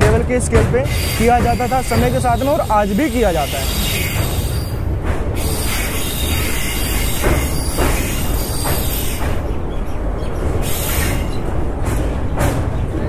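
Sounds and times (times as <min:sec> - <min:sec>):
sharp wheel clacks: 0:00.0 - 0:09.6
train wheels rumbling on rails: 0:00.0 - 0:13.0.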